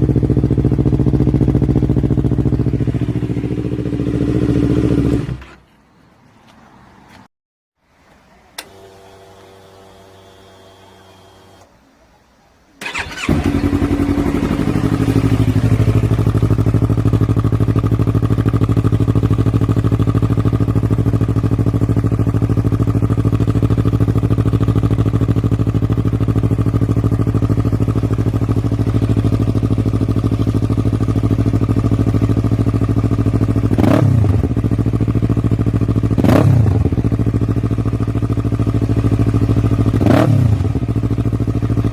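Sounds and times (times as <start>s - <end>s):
motorcycle engine idling: 0.0s - 5.4s, 12.8s - 41.9s
switch click: 8.6s - 8.8s
motorcycle starter: 12.8s - 14.4s.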